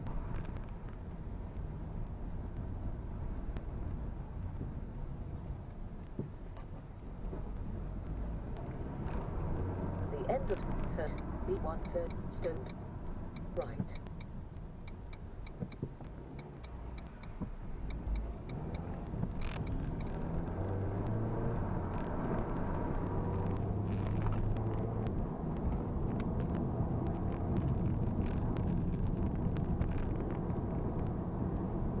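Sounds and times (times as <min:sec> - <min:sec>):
light ticks: 0:00.0 - 0:02.8, 0:03.5 - 0:03.8, 0:10.3 - 0:31.2
car engine running: 0:06.3 - 0:32.0.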